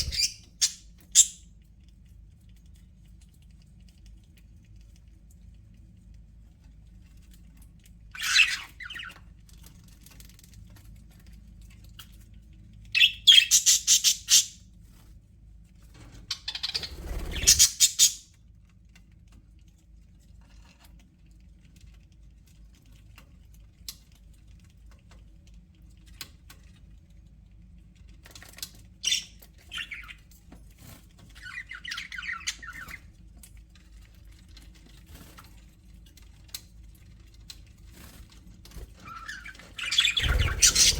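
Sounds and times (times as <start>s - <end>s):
budgerigars squawking and chattering: 0.0s - 1.4s, 13.0s - 14.5s, 16.4s - 18.2s, 39.1s - 40.9s.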